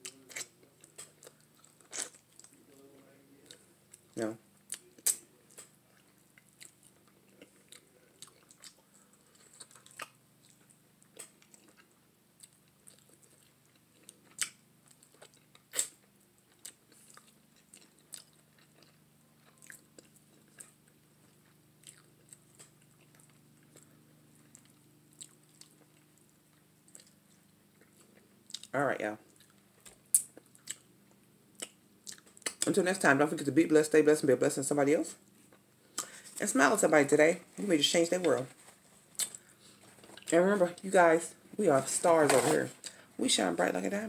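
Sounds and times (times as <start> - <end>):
person chewing: 0.0 - 32.7, 35.4 - 36.2, 39.0 - 40.4.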